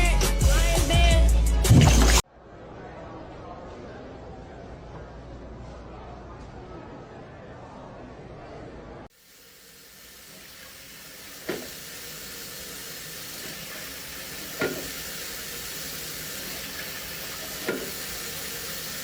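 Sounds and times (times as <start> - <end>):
sizzling hiss: 9.1 - 19.0.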